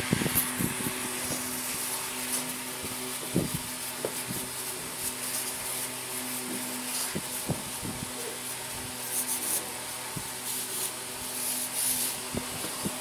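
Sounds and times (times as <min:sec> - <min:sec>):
scrubbing strokes on a part: 0:00.0 - 0:13.0
steady low hum: 0:00.0 - 0:13.0.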